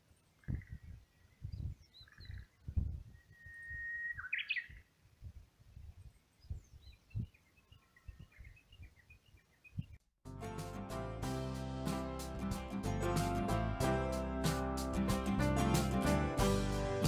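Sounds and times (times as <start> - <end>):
birds singing: 0.3 - 4.9, 5.9 - 10.0
guitar music: 10.3 - 17.0.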